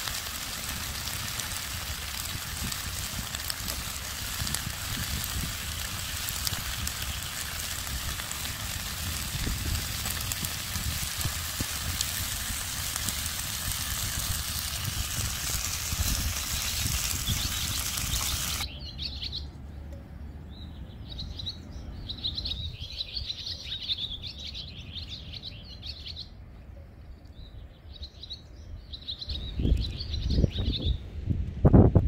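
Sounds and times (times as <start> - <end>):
steady rushing hiss: 0.0 - 18.7
small birds chirping: 0.2 - 31.1.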